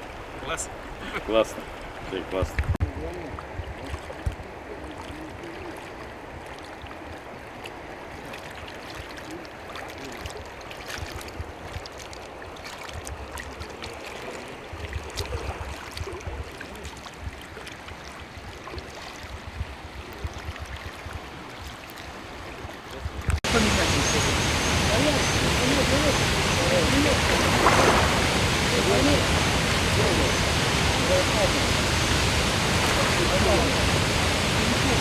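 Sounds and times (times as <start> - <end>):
water flowing and gurgling: 0.0 - 19.0, 20.2 - 35.0
low rumbles: 23.4 - 35.0.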